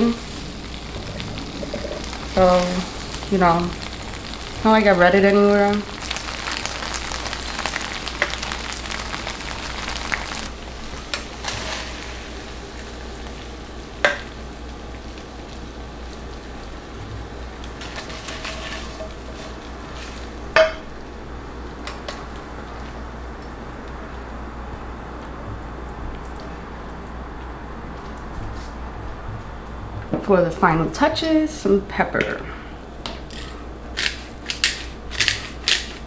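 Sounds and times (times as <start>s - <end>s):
noodles sizzling in a pan: 0.0s - 23.4s.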